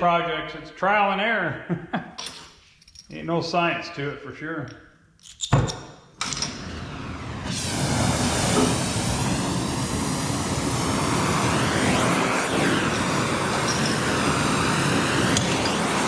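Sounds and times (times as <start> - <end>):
gas torch flame hissing: 6.2 - 16.0.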